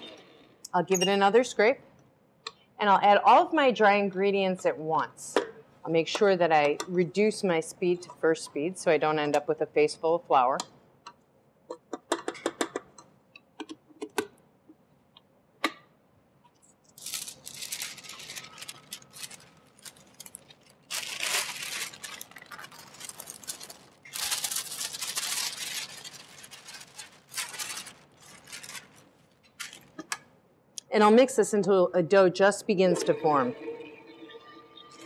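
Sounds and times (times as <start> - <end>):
dry ingredients rustling into bowl: 16.9 - 30.0.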